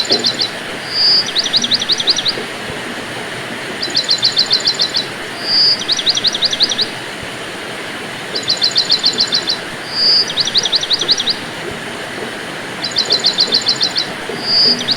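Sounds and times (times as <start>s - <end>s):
songbird trilling and whistling: 0.0s - 2.7s, 3.8s - 7.0s, 8.3s - 11.6s, 12.8s - 14.9s
rain hiss: 0.0s - 14.9s.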